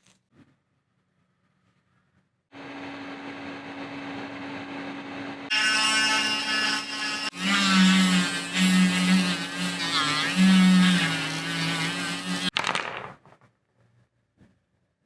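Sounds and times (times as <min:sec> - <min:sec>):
small electric motor humming: 0:05.5 - 0:12.5.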